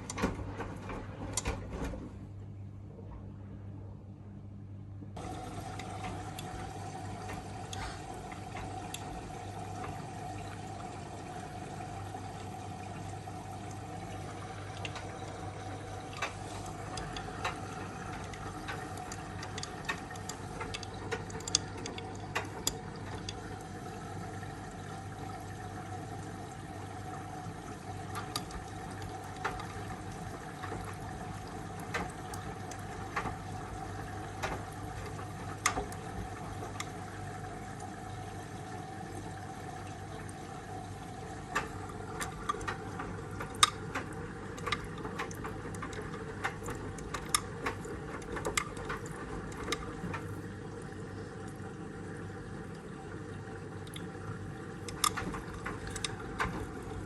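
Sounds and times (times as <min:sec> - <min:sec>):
washing machine running: 0:00.0 - 0:04.3, 0:05.0 - 0:57.0
water noise: 0:05.2 - 0:57.0
small clicks and ticks: 0:14.0 - 0:15.4, 0:16.0 - 0:23.6, 0:28.1 - 0:37.0, 0:41.5 - 0:50.4, 0:54.8 - 0:56.8.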